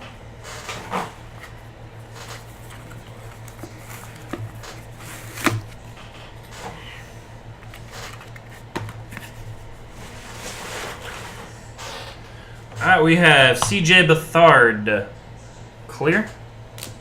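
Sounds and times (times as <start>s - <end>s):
cards and packaging clicks and rustles: 0.6s - 6.7s, 7.6s - 9.6s.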